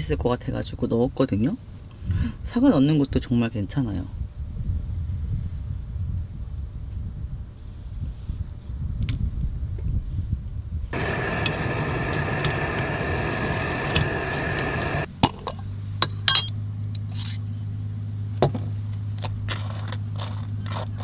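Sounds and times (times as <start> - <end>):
blender whining: 11.0 - 15.1
low steady hum: 11.0 - 15.6.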